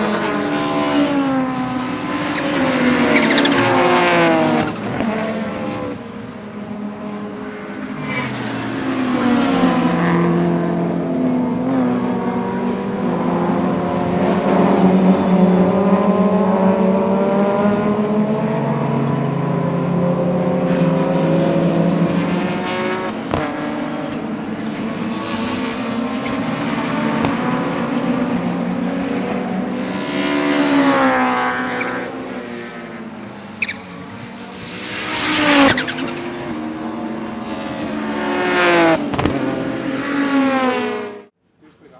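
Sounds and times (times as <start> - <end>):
racing car engine revving: 0.0 - 6.2.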